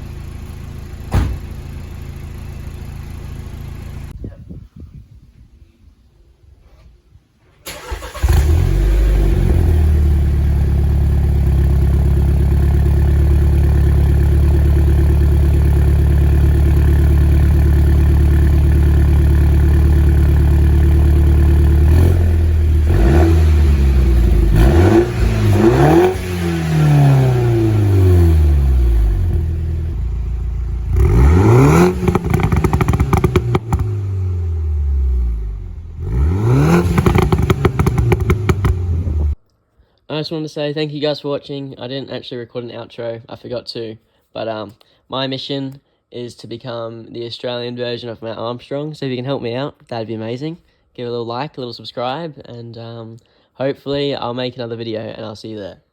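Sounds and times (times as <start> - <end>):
car engine idling and revving: 0.0 - 4.2, 8.2 - 39.4
quick throttle blips: 7.7 - 8.5, 30.9 - 34.2, 36.0 - 39.4.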